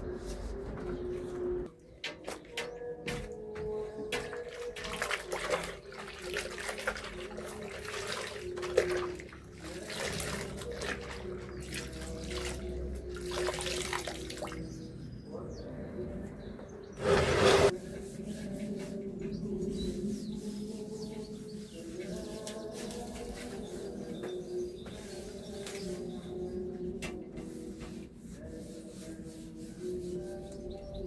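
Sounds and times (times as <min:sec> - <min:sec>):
water running and splashing: 0:04.4 - 0:14.6.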